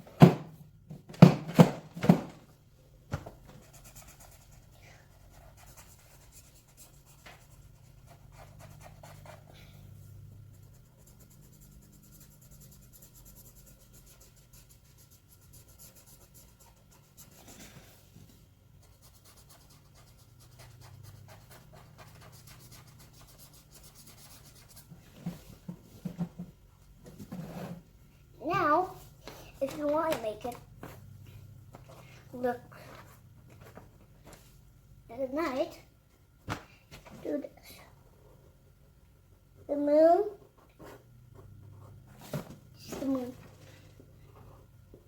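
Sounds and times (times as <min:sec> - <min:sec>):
pen scratching on paper: 0:03.6 - 0:09.5, 0:18.8 - 0:24.9.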